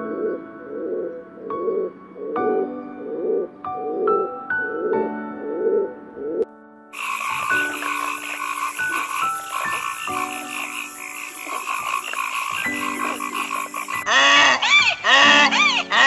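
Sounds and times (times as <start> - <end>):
soft piano music: 0.0 - 16.0
frogs calling in chorus: 7.0 - 16.0.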